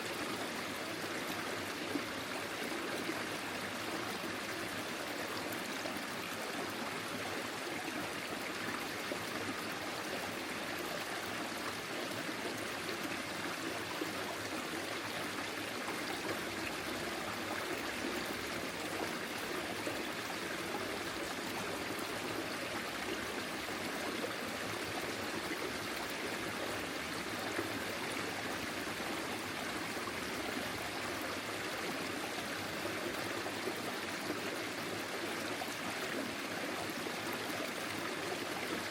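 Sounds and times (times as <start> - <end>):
stream flowing over its bed: 0.0 - 38.9.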